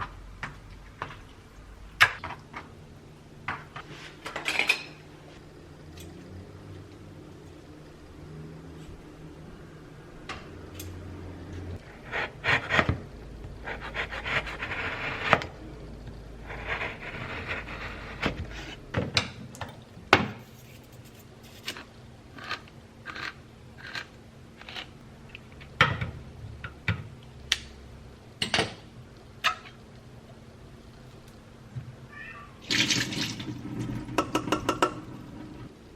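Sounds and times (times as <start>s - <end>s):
rubbing and scraping: 20.4s - 24.0s.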